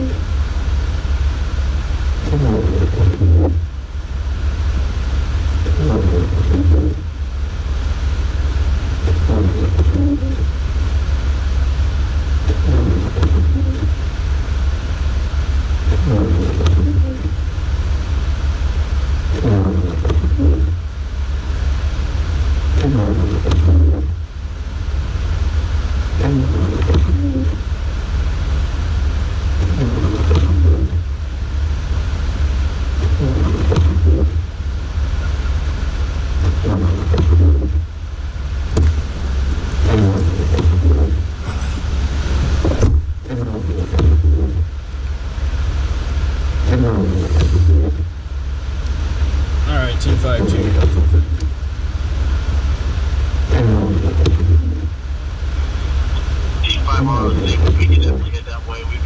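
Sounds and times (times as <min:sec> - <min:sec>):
engine idling: 0:34.0 - 0:53.8, 0:54.6 - 0:59.0.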